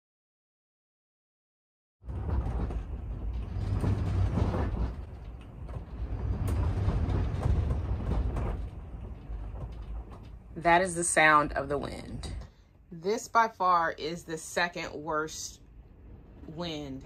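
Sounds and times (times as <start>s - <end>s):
wind buffeting a vehicle: 2.0s - 10.9s.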